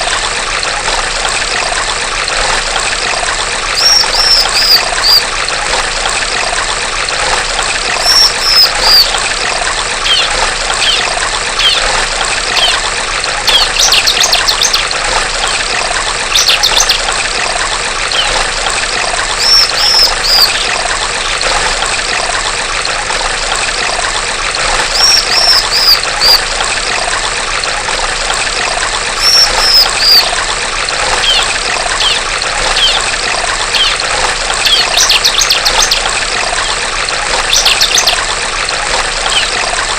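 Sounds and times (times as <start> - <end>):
trickling stream: 0.0 - 39.9
bird calling: 3.8 - 5.2, 8.0 - 9.2, 10.0 - 12.8, 13.5 - 14.9, 16.3 - 17.0, 18.1 - 18.4, 19.4 - 20.8, 24.9 - 26.4, 29.2 - 30.4, 31.1 - 36.8, 37.4 - 38.2, 39.3 - 39.6
rapid bird chatter: 3.8 - 5.2, 8.0 - 9.2, 10.0 - 12.9, 13.5 - 15.7, 16.3 - 17.1, 18.1 - 18.4, 19.4 - 20.8, 24.9 - 26.4, 29.2 - 30.4, 31.0 - 38.2, 39.2 - 39.6.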